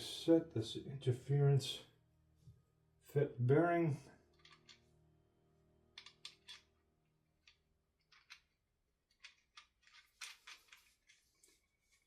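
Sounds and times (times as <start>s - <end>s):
small parts clicking and tapping: 4.3s - 4.9s, 5.9s - 12.0s.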